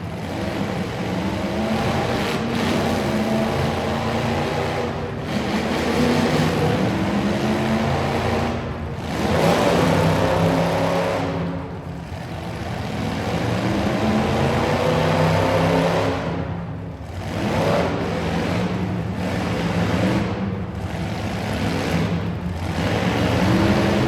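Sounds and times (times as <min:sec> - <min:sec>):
truck engines revving: 0:00.0 - 0:24.0.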